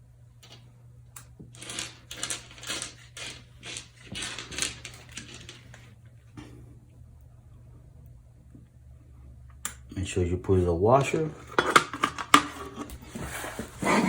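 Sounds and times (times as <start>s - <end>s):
screws and metal hardware rustling: 1.5s - 6.0s.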